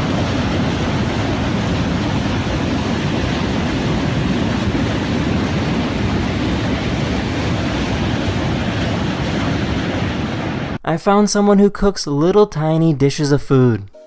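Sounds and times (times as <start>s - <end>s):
rockets firing with rushing noise: 0.0s - 10.8s.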